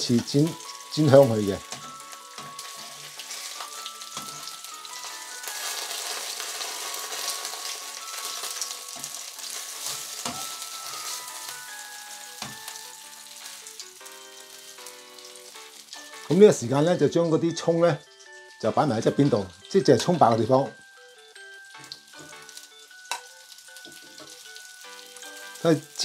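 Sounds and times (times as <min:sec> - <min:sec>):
fish sizzling in oil: 0:00.0 - 0:26.0.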